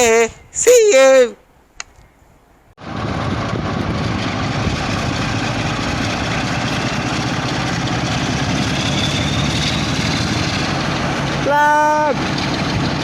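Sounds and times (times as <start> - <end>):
diesel train engine rumbling: 2.8 - 13.0.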